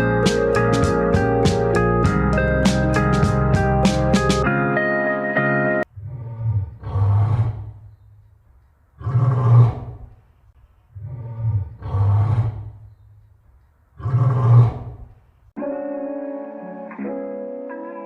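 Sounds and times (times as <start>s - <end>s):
background music: 0.0s - 5.8s, 15.6s - 18.0s
big cat roaring: 6.0s - 7.8s, 9.0s - 10.1s, 11.0s - 12.8s, 14.0s - 15.1s.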